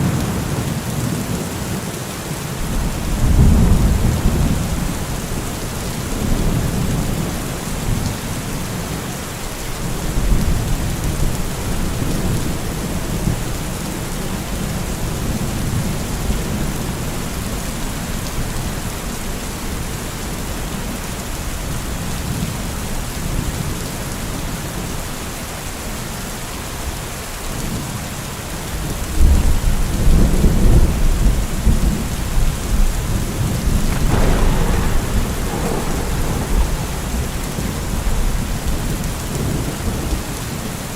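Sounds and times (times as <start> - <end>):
rolling thunder: 0.0 - 5.4, 32.8 - 40.6
steady rain: 0.0 - 40.9.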